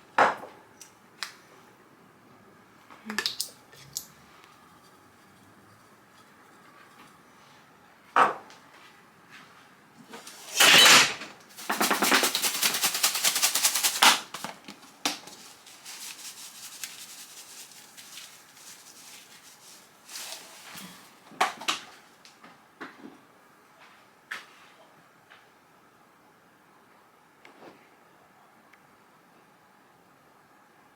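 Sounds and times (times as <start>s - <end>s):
loud rustling: 10.3s - 14.5s, 15.3s - 20.8s.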